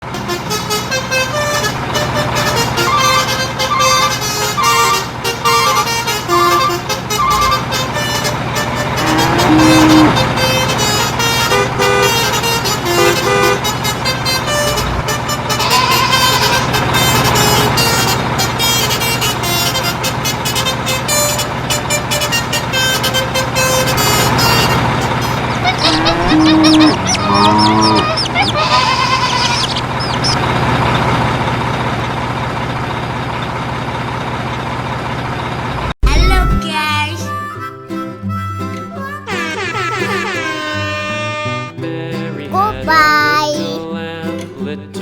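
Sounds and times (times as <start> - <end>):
sliding pitch sound effects: 9.0 - 10.3
motor-like hum: 24.7 - 31.4.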